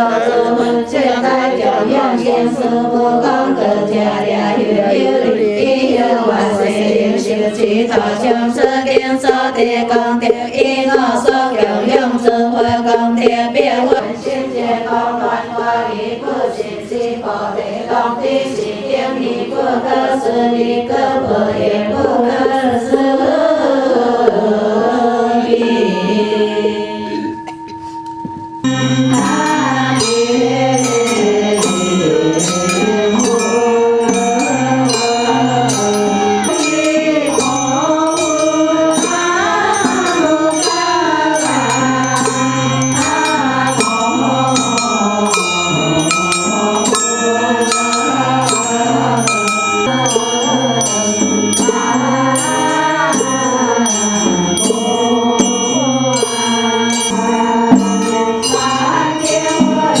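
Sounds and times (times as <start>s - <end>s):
voices chanting: 0.0s - 60.0s
steady percussion beat: 6.4s - 14.0s, 27.1s - 60.0s.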